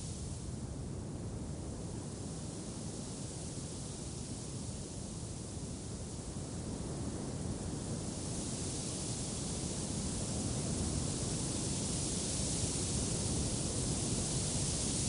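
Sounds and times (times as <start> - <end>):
steady wind noise: 0.0 - 15.0.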